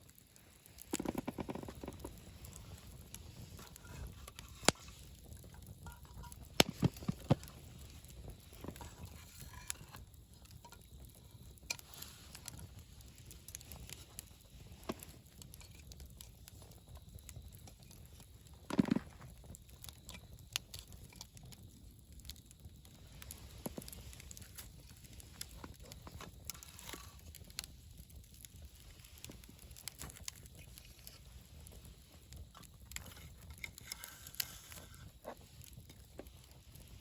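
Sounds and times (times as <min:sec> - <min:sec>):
campfire flames rumbling: 0:00.0 - 0:37.0
fire crackling and popping: 0:00.0 - 0:37.0
rustle: 0:00.2 - 0:10.8, 0:23.1 - 0:27.8, 0:28.6 - 0:37.0.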